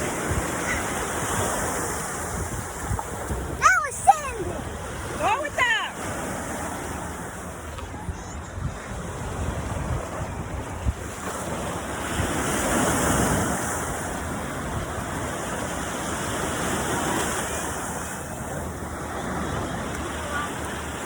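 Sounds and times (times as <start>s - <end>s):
ocean surf washing on beach: 0.0s - 21.0s
wind buffeting microphone: 0.0s - 21.0s.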